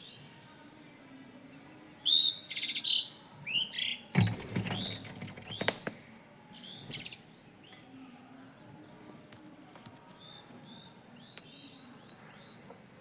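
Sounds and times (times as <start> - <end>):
birds chirping: 1.5 - 8.0, 10.0 - 13.0
wing fluttering rush: 4.2 - 6.0.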